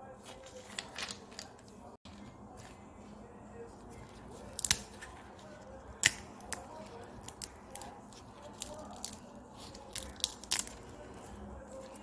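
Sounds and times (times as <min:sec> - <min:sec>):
peanut shells cracking: 0:04.2 - 0:05.3, 0:05.9 - 0:12.0.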